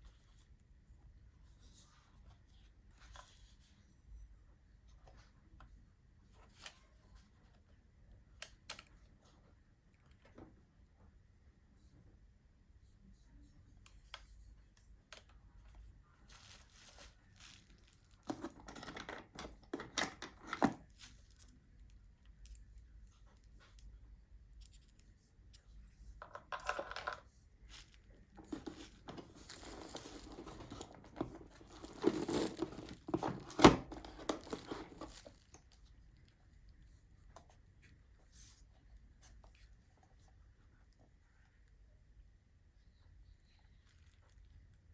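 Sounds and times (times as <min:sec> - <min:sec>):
packaging tearing and crinkling: 0:28.6 - 0:35.4.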